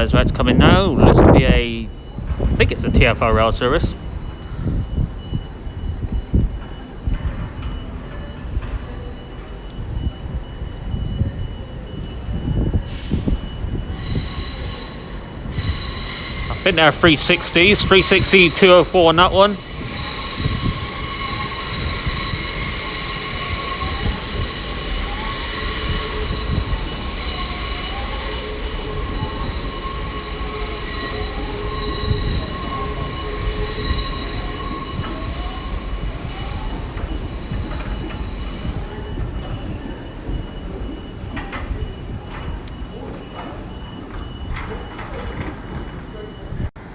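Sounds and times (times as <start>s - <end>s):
low rumble of train: 0.0s - 46.9s
train wheels squealing: 3.7s - 46.6s
wavering tone: 13.9s - 41.0s.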